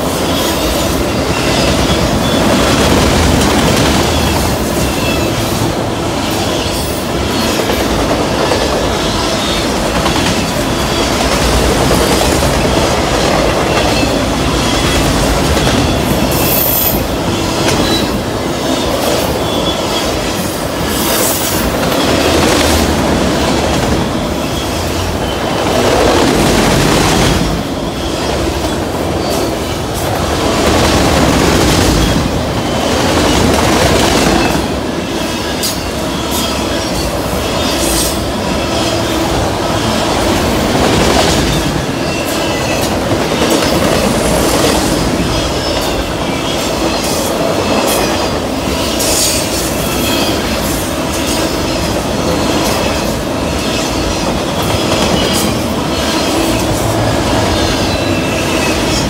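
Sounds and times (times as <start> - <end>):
clickety-clack over rail joints: 0.0 - 59.0
steel wheels rumbling on rail: 0.0 - 59.0
high wheel squeals: 0.1 - 2.9, 12.4 - 22.4, 43.5 - 59.0.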